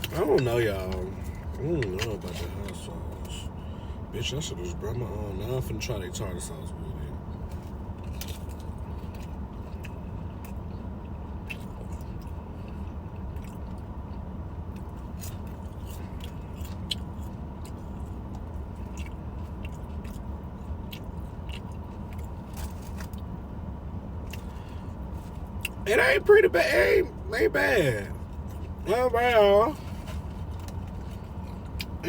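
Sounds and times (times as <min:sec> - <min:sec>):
person chewing crunchy food: 0:08.0 - 0:23.3.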